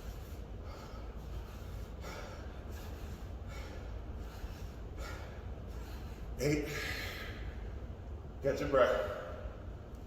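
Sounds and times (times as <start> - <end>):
person breathing sharply: 0.0 - 7.5
steady low hum: 0.0 - 10.0.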